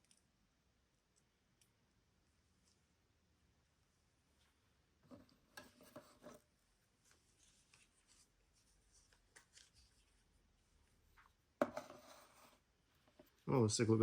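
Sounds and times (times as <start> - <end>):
plastic watch handling rubbing: 5.1 - 10.3.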